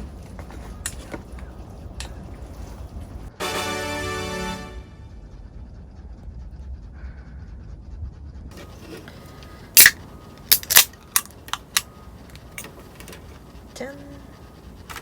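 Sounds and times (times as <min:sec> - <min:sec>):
objects being handled clicking: 0:00.0 - 0:03.2, 0:08.6 - 0:13.6
low steady rumble: 0:00.0 - 0:15.0.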